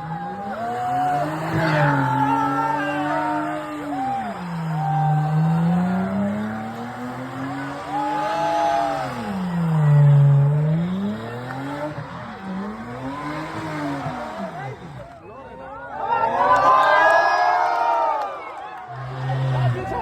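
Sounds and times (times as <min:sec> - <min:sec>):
tyres squealing: 0:00.0 - 0:15.1
car engine revving: 0:00.0 - 0:15.2, 0:18.8 - 0:20.0.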